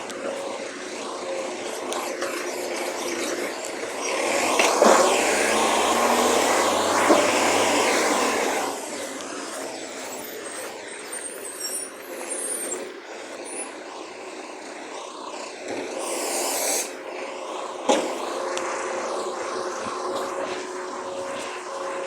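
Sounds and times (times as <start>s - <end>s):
recycling truck running: 0.0s - 22.0s
short hiss: 16.0s - 17.0s.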